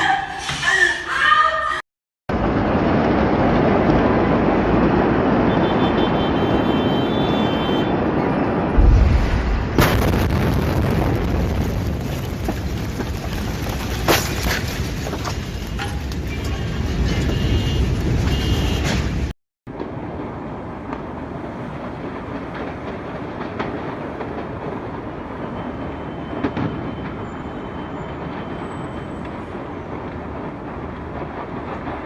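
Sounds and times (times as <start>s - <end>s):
explosion rushing rumble: 7.9s - 15.2s
deep boom: 8.5s - 13.0s
sharp cracks: 8.7s - 16.2s.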